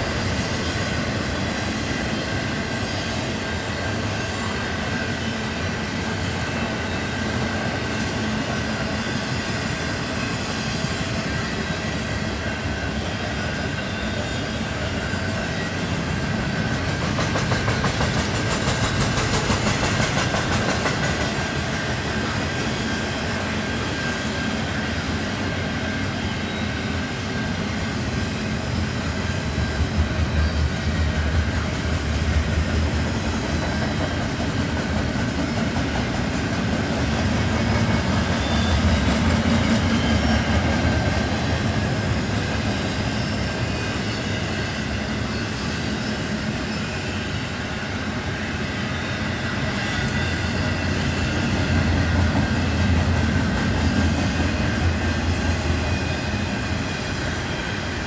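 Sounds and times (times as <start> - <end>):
steel wheels rumbling on rails: 0.0 - 58.0.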